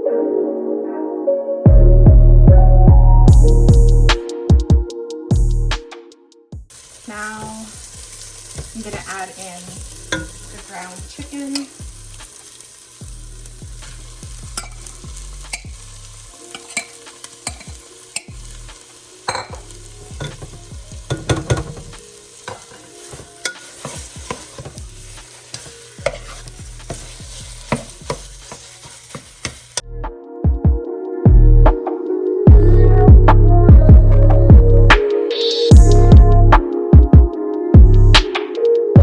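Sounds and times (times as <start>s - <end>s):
music with pulsing bass: 1.7s - 5.8s, 29.8s - 31.8s, 32.5s - 35.0s, 35.7s - 38.3s
meat sizzling in oil: 6.7s - 29.8s
utensil scraping a pot: 20.2s - 29.8s.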